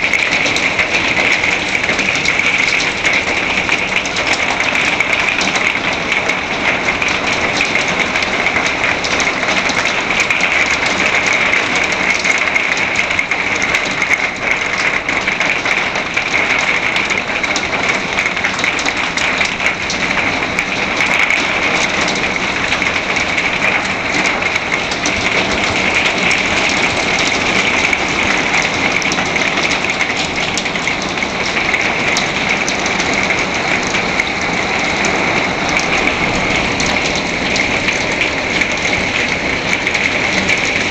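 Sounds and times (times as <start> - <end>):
heavy rain and hail: 0.0 - 40.9.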